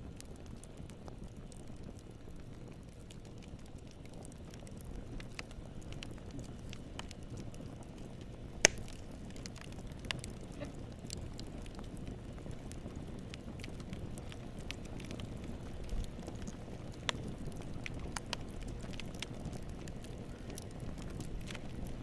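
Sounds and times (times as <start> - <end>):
crackles and pops: 0.0 - 22.0
sharp pop: 8.6 - 8.9.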